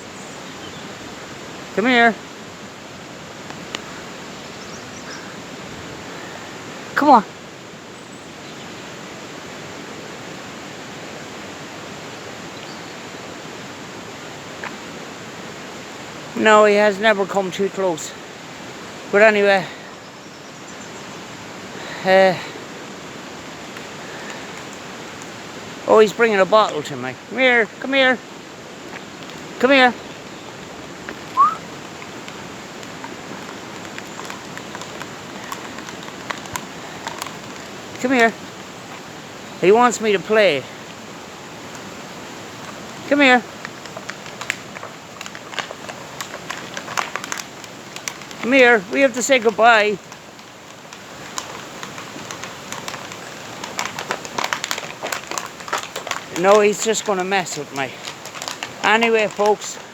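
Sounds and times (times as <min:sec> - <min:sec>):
faint clicks: 0:03.4 - 0:04.0, 0:23.7 - 0:25.4, 0:31.0 - 0:39.1, 0:41.6 - 0:59.9
fast-flowing river water rushing: 0:27.1 - 0:59.9.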